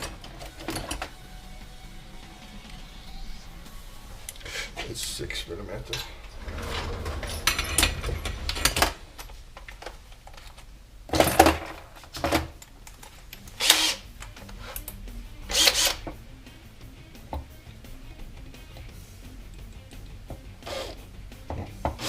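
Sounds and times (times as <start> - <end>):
faint background music: 0.0 - 10.1, 10.8 - 22.0
workshop tool bursts: 13.6 - 14.0.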